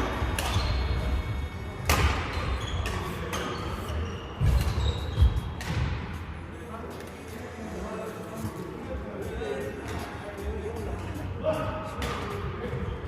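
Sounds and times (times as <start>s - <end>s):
racket striking shuttlecock: 0.3s - 0.8s, 1.8s - 3.5s, 5.5s - 6.1s
shoe squeaks: 0.5s - 1.3s, 2.2s - 5.6s.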